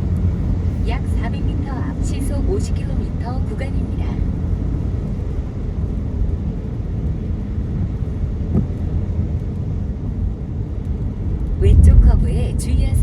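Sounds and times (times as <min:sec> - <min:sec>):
car road rumble inside cabin: 0:00.0 - 0:13.0.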